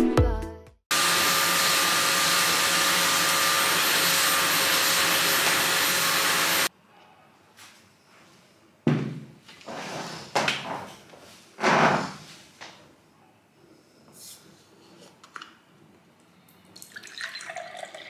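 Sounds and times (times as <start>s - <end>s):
vacuum cleaner running: 0.9s - 6.7s.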